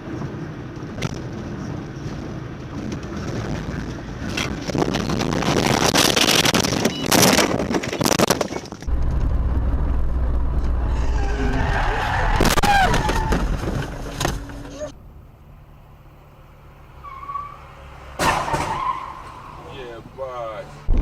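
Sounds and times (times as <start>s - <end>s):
wind rushing on microphone: 0.0s - 14.0s
vehicle noise: 0.0s - 21.0s.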